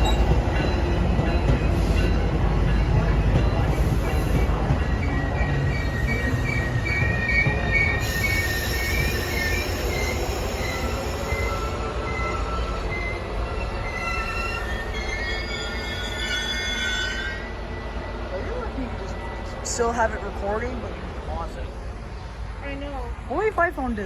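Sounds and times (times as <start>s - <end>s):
train rumbling: 0.0s - 24.0s
wheel squeal: 5.0s - 17.6s.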